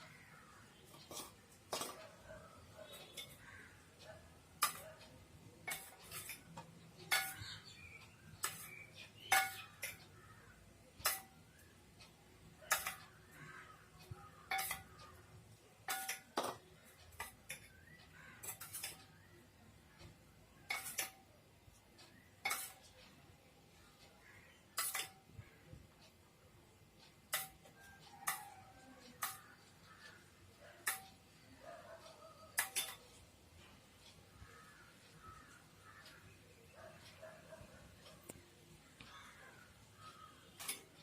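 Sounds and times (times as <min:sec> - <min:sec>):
utensil clinking against dishes: 0:00.1 - 0:03.8, 0:04.6 - 0:11.7, 0:12.6 - 0:19.3, 0:20.0 - 0:21.3, 0:22.1 - 0:23.1, 0:24.6 - 0:25.4, 0:27.0 - 0:37.4, 0:40.0 - 0:41.0.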